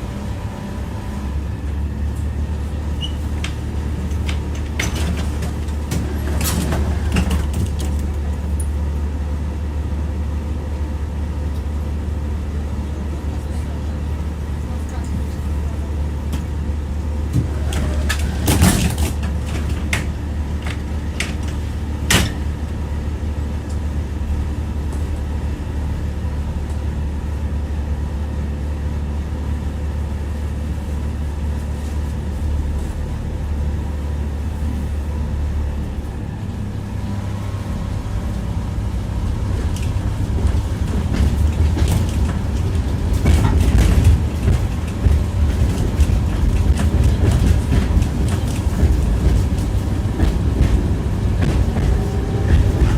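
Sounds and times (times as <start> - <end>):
tram rumbling on track: 0.0 - 52.9
wheels knocking on rail joints: 39.2 - 52.9.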